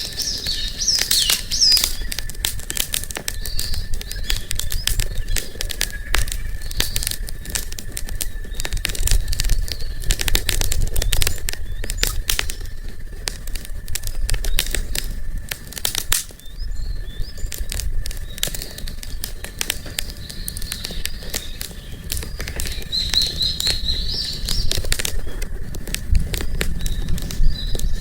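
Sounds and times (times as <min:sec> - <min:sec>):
bird chirping: 0:00.0 - 0:07.2, 0:09.4 - 0:12.8, 0:16.3 - 0:28.0
wood fire crackling: 0:00.0 - 0:28.0.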